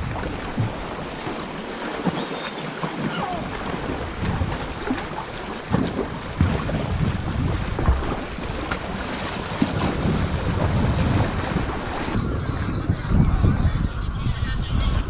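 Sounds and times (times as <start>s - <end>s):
wind buffeting microphone: 0.0s - 1.5s, 3.0s - 15.0s
waves splashing against kayak: 0.0s - 12.2s.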